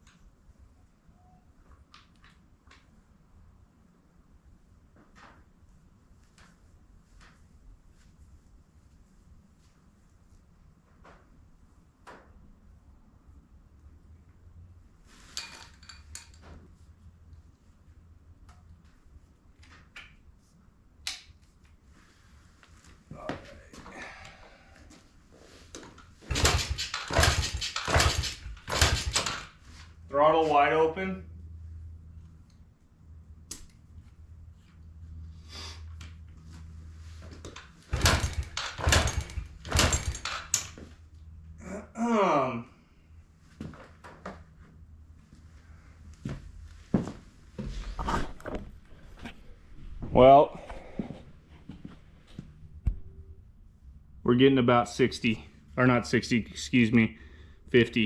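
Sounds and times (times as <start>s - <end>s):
knocks: 26.3s - 29.4s, 37.9s - 40.7s.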